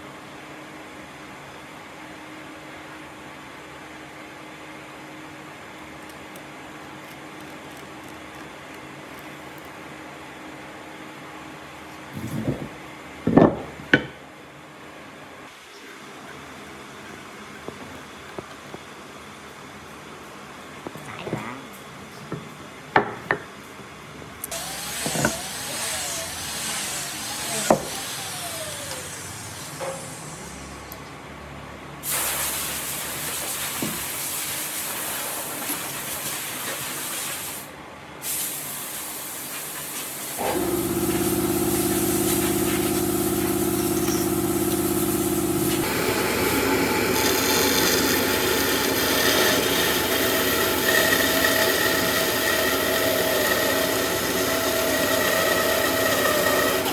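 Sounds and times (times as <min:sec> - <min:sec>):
electric motor humming: 0:24.5 - 0:30.9, 0:40.4 - 0:56.9.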